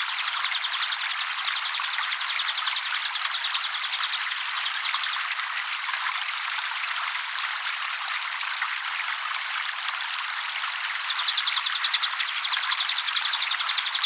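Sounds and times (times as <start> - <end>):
insect high-pitched chirping: 0.0 - 5.2, 11.1 - 14.0
trickling water: 0.0 - 14.0.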